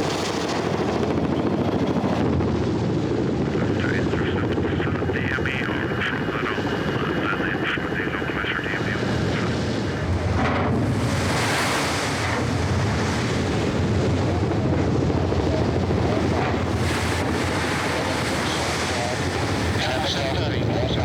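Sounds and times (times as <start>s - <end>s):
helicopter rotor and engine: 0.0s - 21.0s
wind blowing across microphone: 0.0s - 21.0s.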